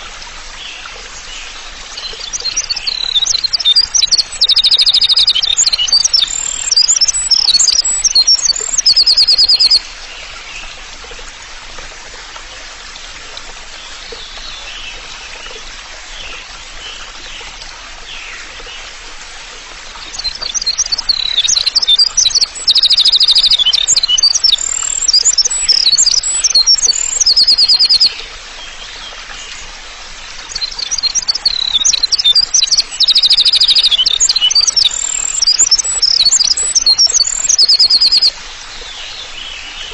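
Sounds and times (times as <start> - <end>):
songbird chirps and buzzy trills: 0.0 - 10.8, 19.9 - 39.9
faint background bird calls: 0.0 - 11.4, 12.5 - 39.9.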